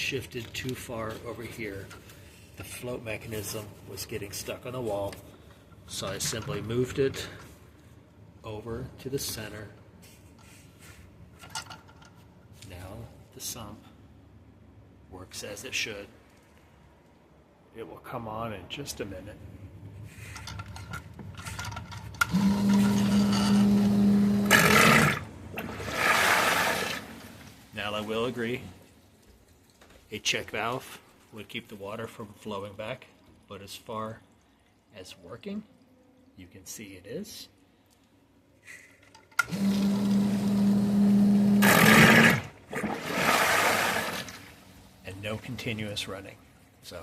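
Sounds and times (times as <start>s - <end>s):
sump pump motor humming: 22.2s - 27.2s, 39.4s - 44.5s
water rushing: 24.9s - 28.4s, 41.8s - 44.7s
rush of water: 42.7s - 44.5s.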